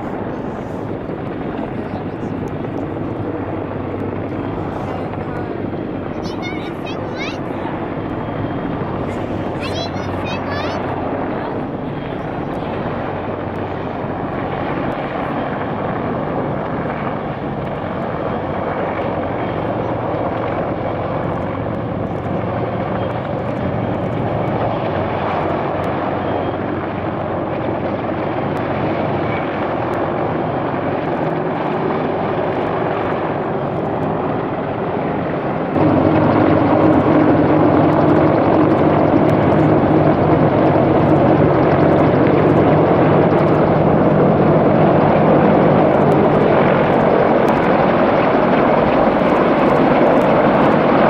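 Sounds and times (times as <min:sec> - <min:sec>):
helicopter rotor and engine noise: 0:00.0 - 0:51.0.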